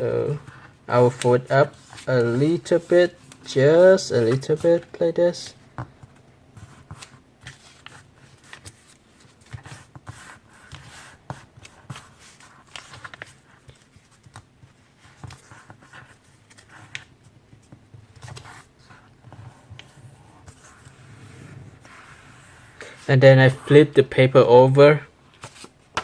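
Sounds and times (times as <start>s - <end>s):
paper being folded and creased: 0.1s - 5.1s, 6.7s - 22.9s, 25.3s - 26.0s.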